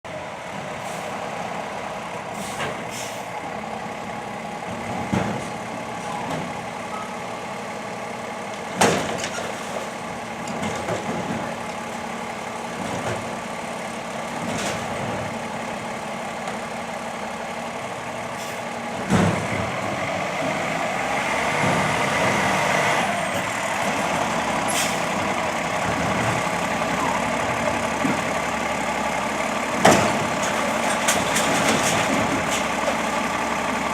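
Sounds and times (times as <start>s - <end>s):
garbage truck engine running: 0.1s - 33.9s
metal clanks and knocks: 29.8s - 33.0s.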